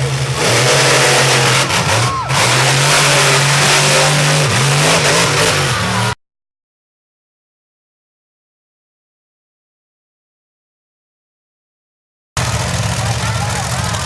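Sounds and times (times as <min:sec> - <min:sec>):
monster truck engine revving: 0:00.0 - 0:06.2, 0:12.4 - 0:14.0.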